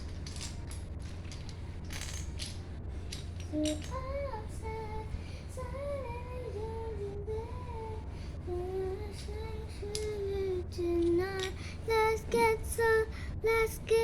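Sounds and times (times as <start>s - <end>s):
plastic bricks clicking and rattling: 0.0s - 3.9s.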